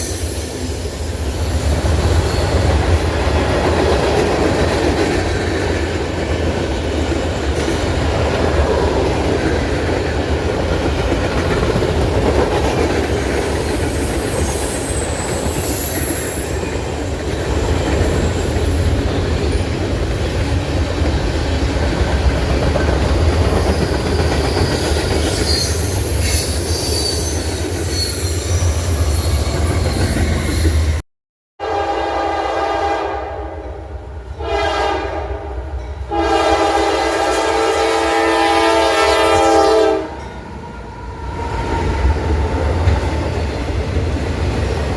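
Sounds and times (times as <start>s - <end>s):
train rumbling past: 0.0s - 31.0s, 31.6s - 44.9s
wheels clattering on rails: 1.4s - 26.7s
locomotive air horn: 31.6s - 33.6s, 34.4s - 40.2s.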